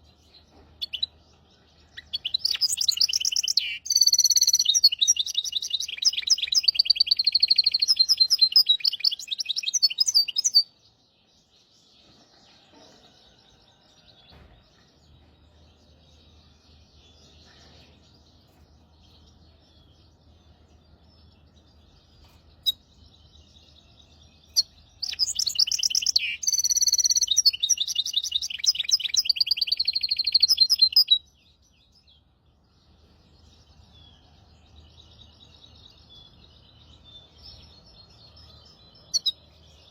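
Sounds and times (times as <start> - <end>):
faint bird chirps: 0.0 - 10.8, 12.0 - 32.2, 33.0 - 39.9
finch singing trilled song: 0.0 - 11.5, 15.1 - 39.9.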